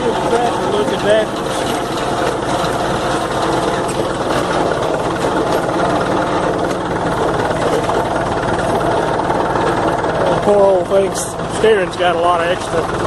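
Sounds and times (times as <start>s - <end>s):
blade scraping along driveway: 0.0s - 13.0s
tractor engine running: 0.0s - 13.0s.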